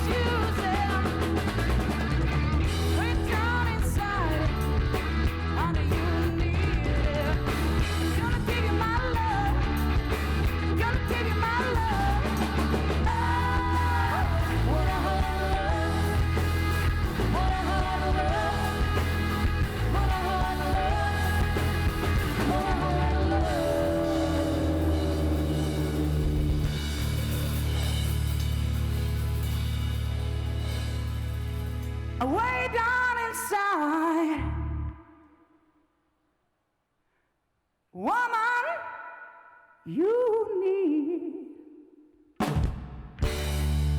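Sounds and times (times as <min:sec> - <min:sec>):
rock band playing: 0:00.0 - 0:32.2, 0:42.5 - 0:43.9
person singing: 0:10.8 - 0:26.6.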